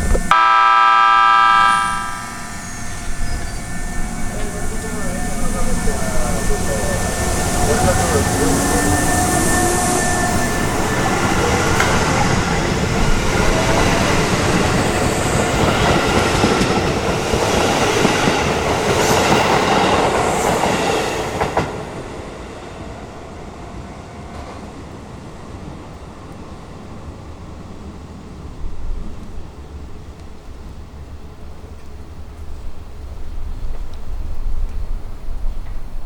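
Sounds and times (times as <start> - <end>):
train wheels clattering over rails: 2.3 - 22.8.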